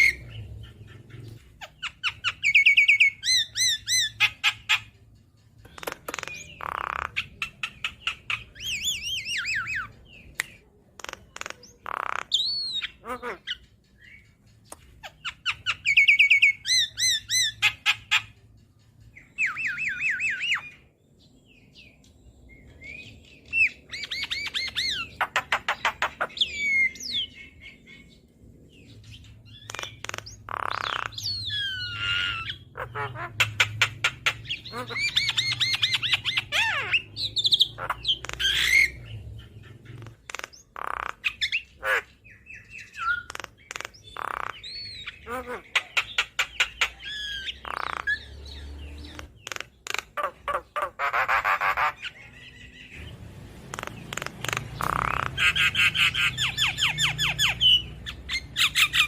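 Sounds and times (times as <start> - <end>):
bird chattering trills: 0.0 - 20.9, 22.8 - 59.0
bird singing whistled notes: 19.2 - 20.8.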